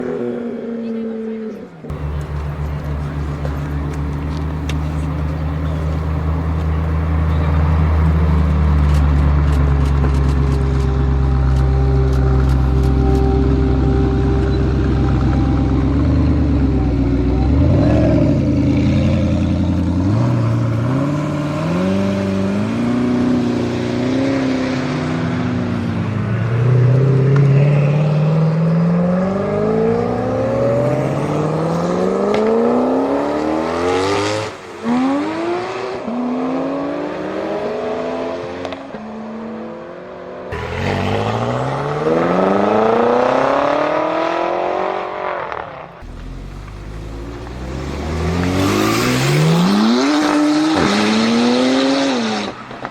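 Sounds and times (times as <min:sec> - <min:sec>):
sports car engine revving: 0:01.9 - 0:25.1, 0:40.5 - 0:52.8.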